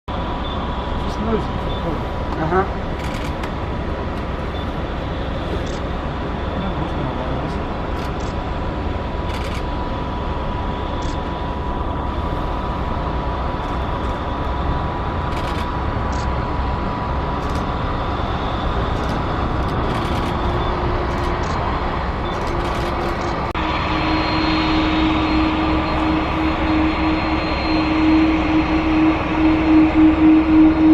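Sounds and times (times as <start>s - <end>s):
jet engine high whine: 0.1s - 30.9s
jet engine rumble: 0.1s - 30.9s
low steady tone: 23.5s - 30.9s.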